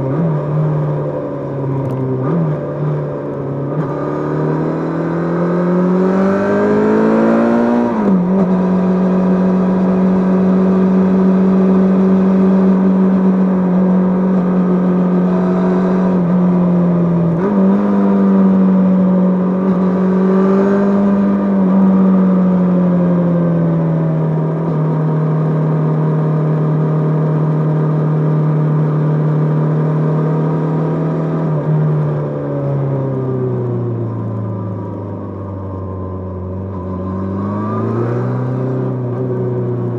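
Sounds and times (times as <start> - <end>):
motorcycle engine riding along: 0.0 - 39.9.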